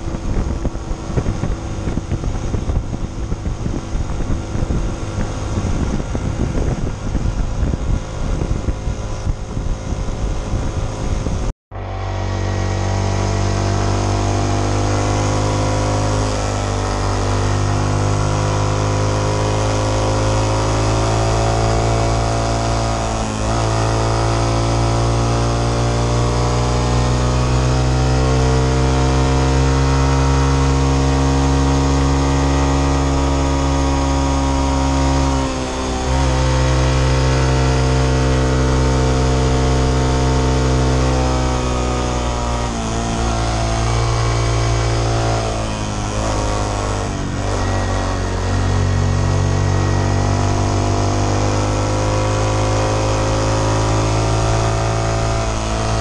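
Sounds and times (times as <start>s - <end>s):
wind buffeting microphone: 0.0s - 11.5s
motorcycle engine droning: 0.0s - 56.0s.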